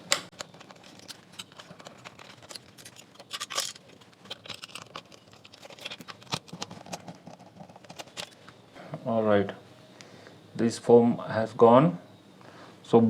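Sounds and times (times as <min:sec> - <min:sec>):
plastic housing clicks and scrapes: 0:00.0 - 0:08.6.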